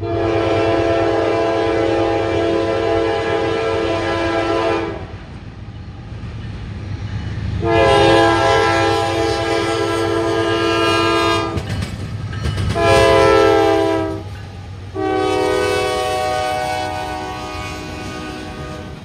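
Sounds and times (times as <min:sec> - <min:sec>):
locomotive air horn blasts: 0:00.0 - 0:05.1, 0:07.6 - 0:11.6, 0:12.8 - 0:14.3, 0:14.9 - 0:19.0
freight train rumble and rail clatter: 0:00.0 - 0:19.0.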